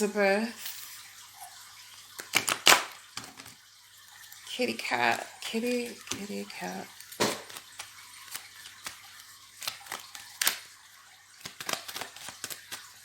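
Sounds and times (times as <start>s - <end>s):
cards clicking and rustling: 2.2s - 3.6s, 6.0s - 10.7s, 11.4s - 13.0s.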